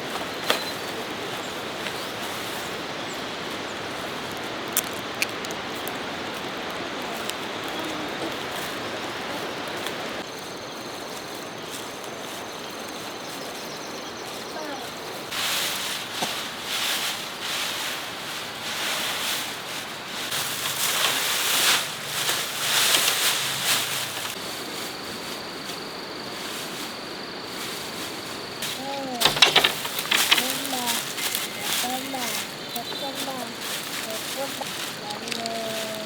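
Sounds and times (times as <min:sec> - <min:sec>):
insects trilling: 0:00.0 - 0:36.0
rustling or scraping: 0:14.7 - 0:36.0.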